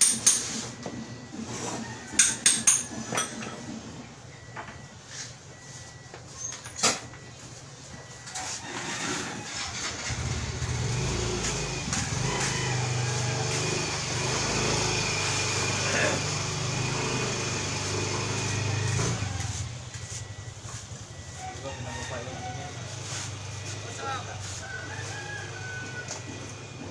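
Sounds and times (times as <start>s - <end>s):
vehicle engine humming: 9.5s - 26.9s.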